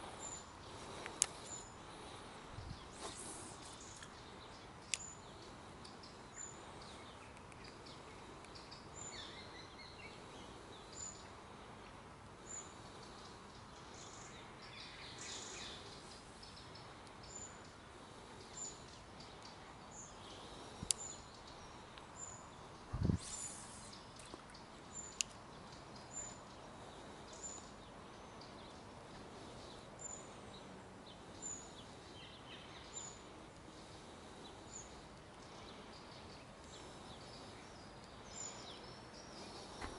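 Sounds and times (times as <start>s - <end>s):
bird chirping: 0.0s - 11.8s, 12.4s - 39.9s
birds singing: 0.0s - 39.9s
steady background hiss: 0.0s - 39.9s.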